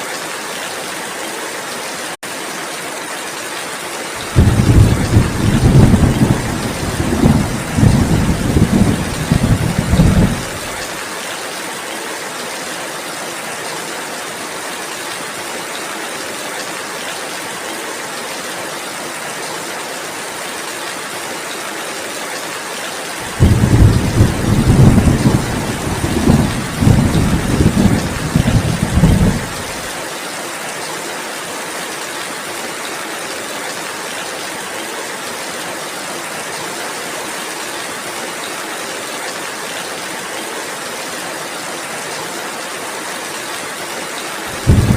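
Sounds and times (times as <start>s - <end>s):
steady rain: 0.0s - 44.9s
deep thunder rumble: 4.3s - 10.8s, 23.2s - 29.9s, 44.6s - 44.9s.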